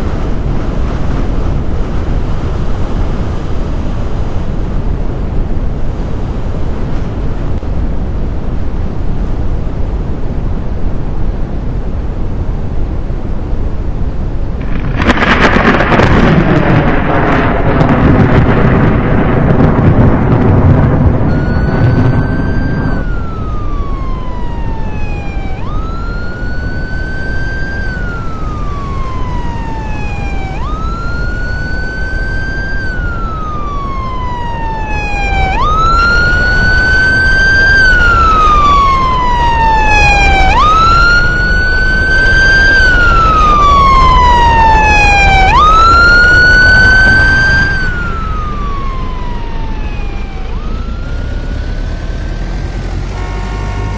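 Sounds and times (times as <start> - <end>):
steady low noise: 0.0 - 51.5
loud low rumble: 14.5 - 50.8
emergency vehicle siren wailing: 14.6 - 53.9.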